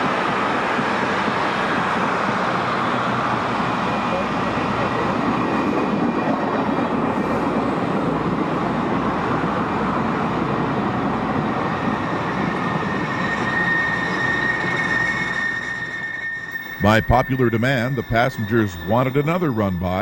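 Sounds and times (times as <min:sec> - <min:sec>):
train rolling on rails: 0:00.0 - 0:20.0
thin high squeal: 0:11.0 - 0:20.0.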